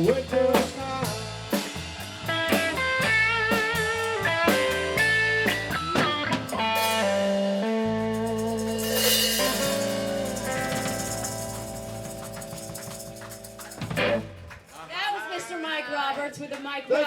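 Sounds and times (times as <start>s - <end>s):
rock band playing: 0.0s - 14.7s
guitar lead with bent notes: 2.2s - 14.7s
cymbal crash: 6.8s - 14.4s.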